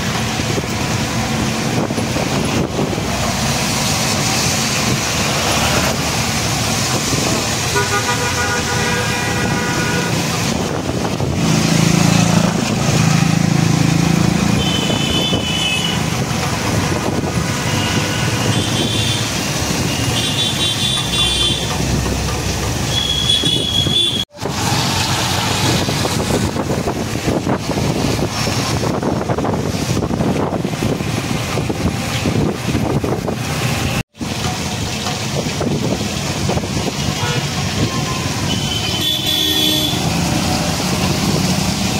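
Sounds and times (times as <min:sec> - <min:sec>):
vehicle engines and road noise: 0:00.0 - 0:41.9
car horn toots: 0:07.7 - 0:10.2, 0:14.5 - 0:16.0, 0:17.7 - 0:19.3, 0:19.9 - 0:21.8, 0:22.9 - 0:24.4, 0:37.2 - 0:37.5, 0:38.4 - 0:40.1.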